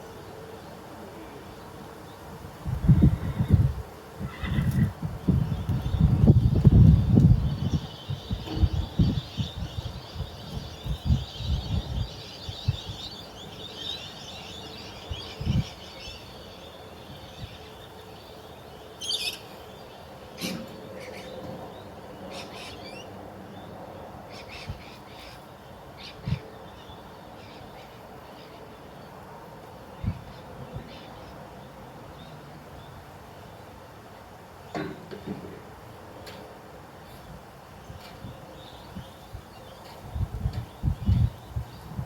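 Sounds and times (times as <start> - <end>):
birds chirping: 4.3 - 29.2.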